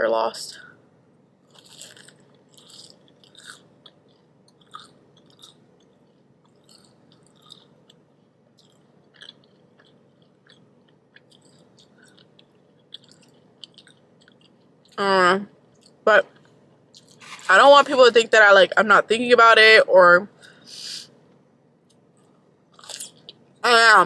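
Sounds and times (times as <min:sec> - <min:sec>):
person chewing crunchy food: 0:01.4 - 0:15.0, 0:15.7 - 0:17.5, 0:21.9 - 0:23.4.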